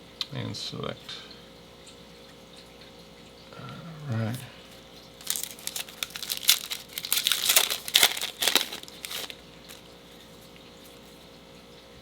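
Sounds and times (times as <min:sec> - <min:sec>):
plastic wrapper crinkling and tearing: 0:05.2 - 0:09.9.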